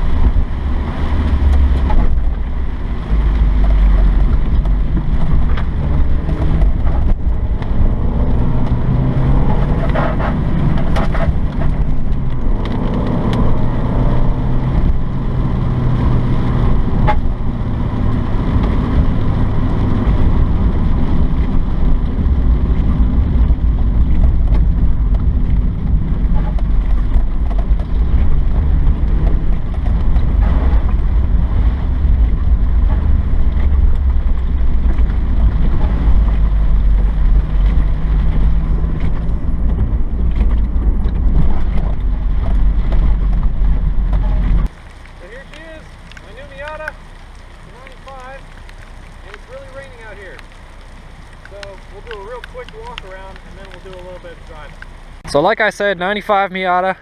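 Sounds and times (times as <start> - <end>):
wind buffeting microphone: 0.0 - 44.7
car engine running: 0.0 - 55.5.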